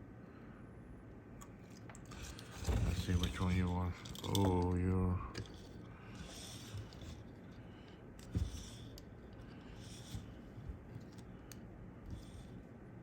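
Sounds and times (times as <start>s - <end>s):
air conditioner hum: 0.0s - 13.0s.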